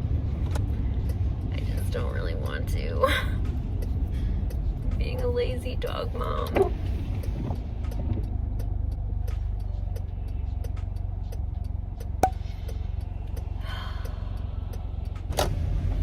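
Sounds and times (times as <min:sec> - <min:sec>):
car road noise rumble: 0:00.0 - 0:16.0
light ticking: 0:03.3 - 0:15.3.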